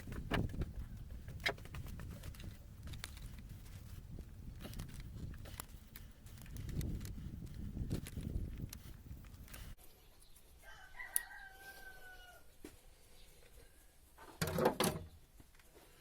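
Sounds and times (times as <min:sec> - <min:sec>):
faint rooster crowing: 0:10.6 - 0:12.7.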